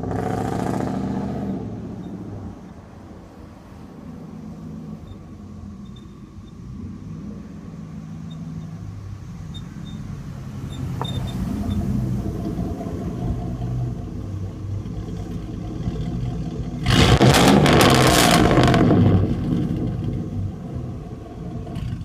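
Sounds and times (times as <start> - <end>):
loud truck exhaust rumble: 0.0 - 22.0.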